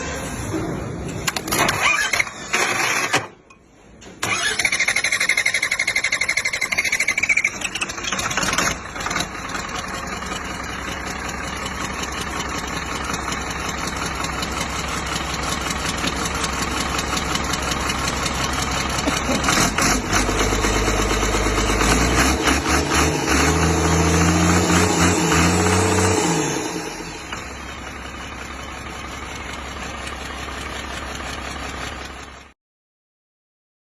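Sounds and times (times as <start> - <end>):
car engine starting and revving: 4.3 - 5.9, 19.0 - 27.6.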